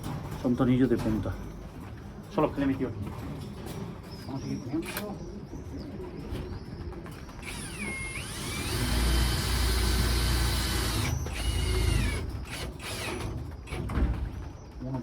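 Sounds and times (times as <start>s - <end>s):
electric drill motor whining: 7.4s - 13.3s.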